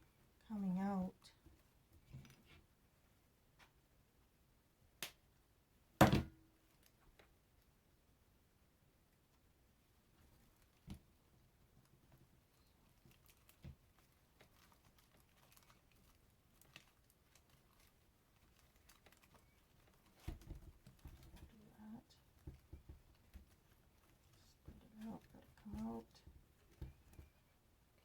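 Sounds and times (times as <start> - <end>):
artificial greenery rustling: 9.3 - 28.0.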